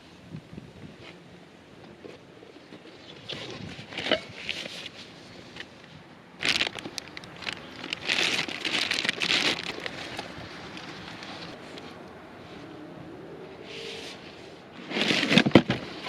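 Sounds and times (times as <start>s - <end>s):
dry material rustling and crackling: 6.4s - 12.6s.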